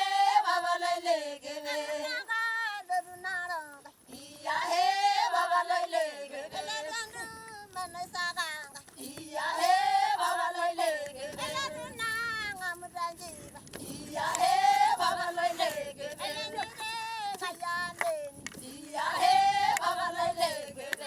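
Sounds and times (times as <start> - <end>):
children singing: 0.0 - 2.0, 14.0 - 17.5, 18.9 - 21.0.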